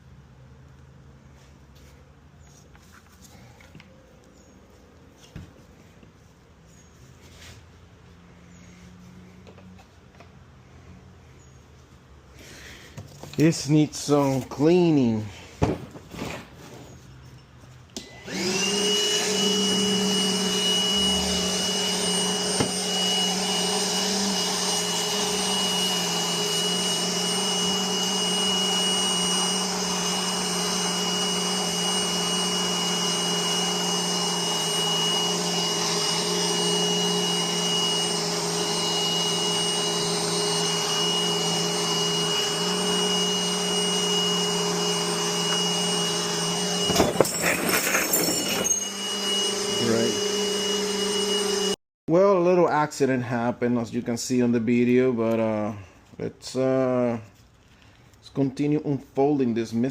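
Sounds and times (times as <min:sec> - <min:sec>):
vacuum cleaner motor whining: 0:12.4 - 0:15.2, 0:18.0 - 0:51.8.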